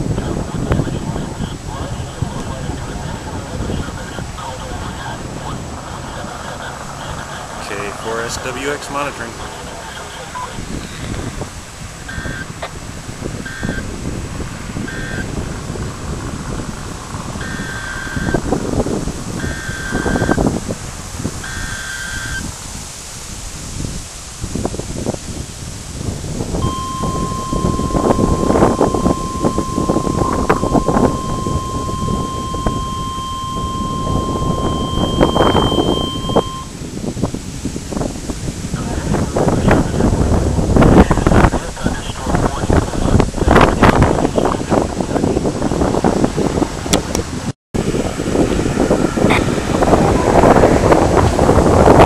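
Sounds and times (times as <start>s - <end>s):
low rumbling noise: 0.0s - 52.0s
wind buffeting microphone: 0.0s - 52.0s
steady high-pitched tone: 12.0s - 12.7s, 14.9s - 15.3s, 17.4s - 18.5s, 19.4s - 20.4s, 21.4s - 22.4s, 26.6s - 36.8s
short high electronic beep: 26.6s - 36.7s.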